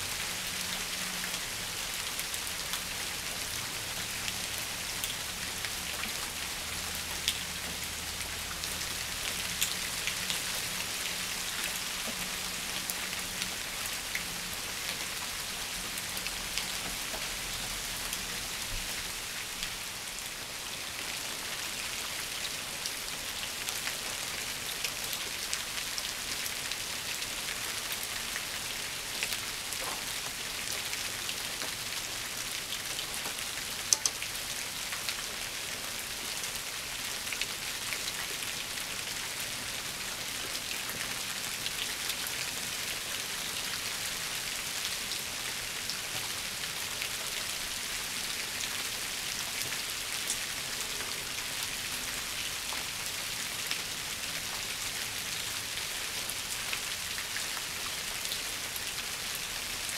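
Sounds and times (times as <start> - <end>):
rain on leaves: 0.0 - 59.9
sharp ticks: 33.9 - 34.2.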